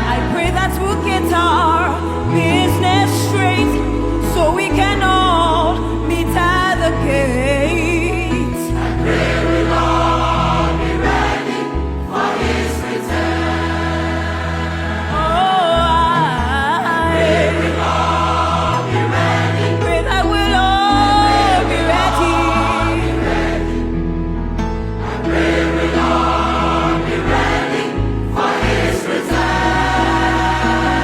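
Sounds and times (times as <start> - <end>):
choir singing gospel: 0.0 - 24.2, 24.8 - 31.0
musical accompaniment with bass: 0.0 - 31.0.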